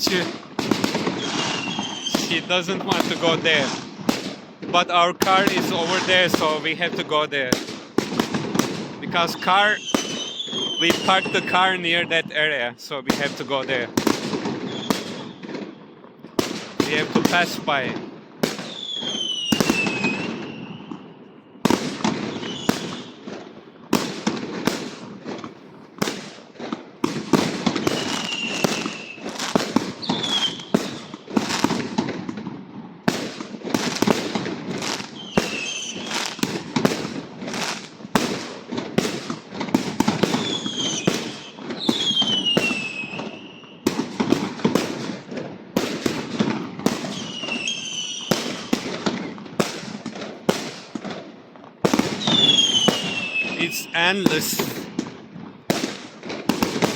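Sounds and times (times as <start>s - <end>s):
firecrackers banging and crackling: 0.0s - 12.3s, 12.9s - 21.0s, 21.6s - 56.9s
falling firework whistles: 1.0s - 2.4s, 9.6s - 11.5s, 14.6s - 15.6s, 18.6s - 21.2s, 22.3s - 23.2s, 27.8s - 31.7s, 34.8s - 36.4s, 40.2s - 43.9s, 47.0s - 48.8s, 51.9s - 54.9s.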